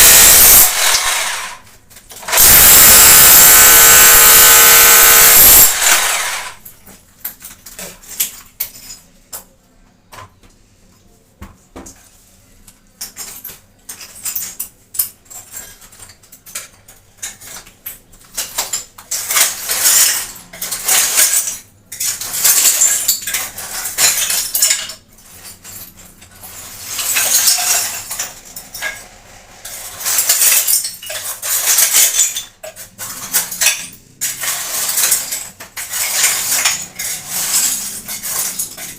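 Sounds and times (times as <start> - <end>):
power drill: 0.0 - 1.6, 2.3 - 6.6
metal tools scraping on tile: 13.1 - 38.9.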